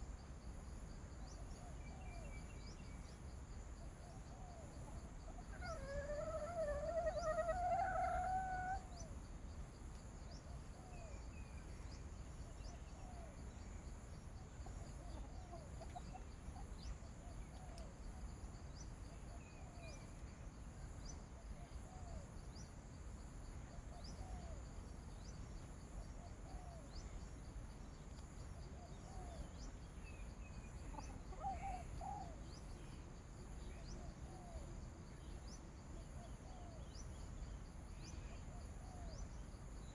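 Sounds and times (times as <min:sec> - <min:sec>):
rooster crowing: 0:05.7 - 0:08.9.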